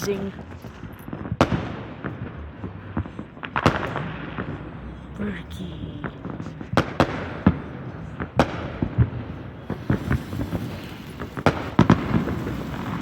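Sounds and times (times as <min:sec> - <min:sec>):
firework crackling pops: 0:00.0 - 0:04.7, 0:06.1 - 0:13.0
firework hissing: 0:04.8 - 0:13.0.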